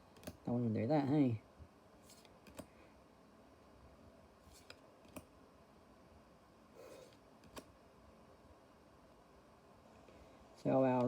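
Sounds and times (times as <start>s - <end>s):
trading cards clicking and snapping: 7.4s - 7.7s.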